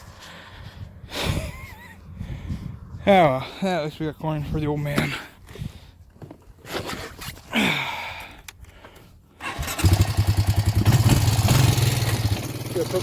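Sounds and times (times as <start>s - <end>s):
engine starting and running: 9.4s - 13.0s.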